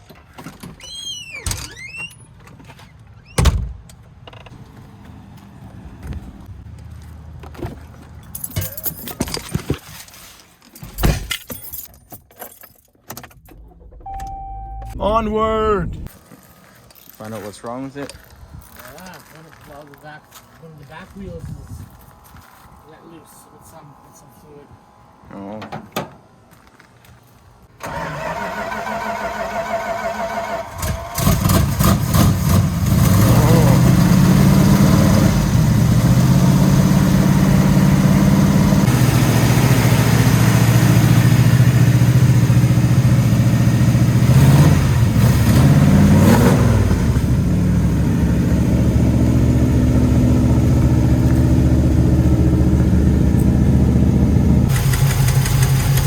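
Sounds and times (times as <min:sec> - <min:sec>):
keys jangling: 0:08.2 - 0:09.5, 0:10.8 - 0:13.6
low rumble: 0:13.6 - 0:16.2
electronic beep: 0:14.0 - 0:15.1
car engine running: 0:31.3 - 0:56.0
starter motor cranking: 0:54.7 - 0:56.0.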